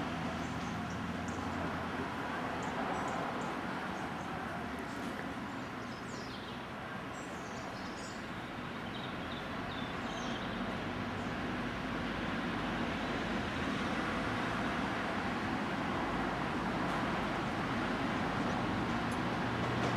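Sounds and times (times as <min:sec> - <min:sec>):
small birds chirping: 0:02.6 - 0:11.4.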